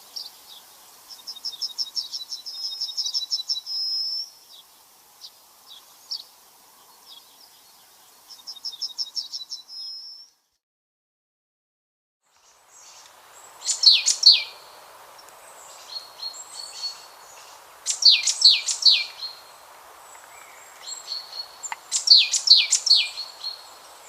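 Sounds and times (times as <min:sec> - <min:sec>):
outdoor hiss: 0:00.0 - 0:09.6, 0:12.3 - 0:24.0
songbird trilling: 0:12.8 - 0:24.0.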